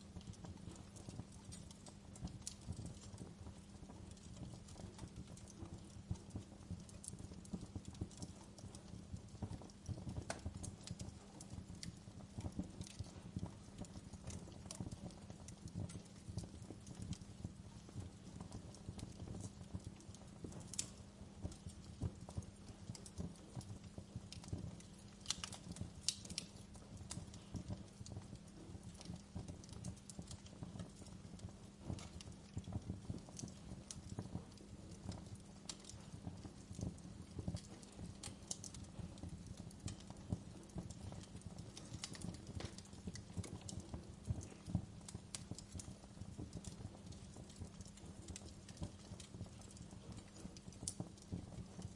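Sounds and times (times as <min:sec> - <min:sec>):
wood fire crackling and popping: 0:00.0 - 0:51.9.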